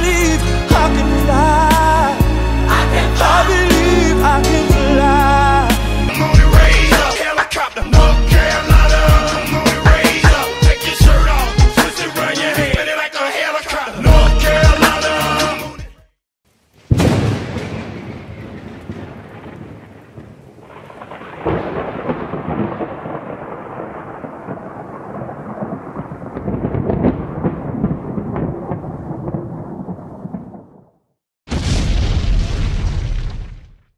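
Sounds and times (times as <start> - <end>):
long thunder rumble: 16.9 - 33.6
thunder clap: 16.9 - 33.8.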